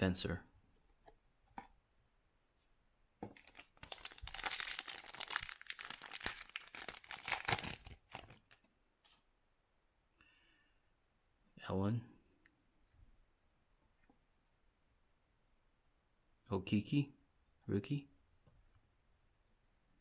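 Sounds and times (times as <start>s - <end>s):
foil wrapper tearing and crinkling: 3.4s - 8.6s.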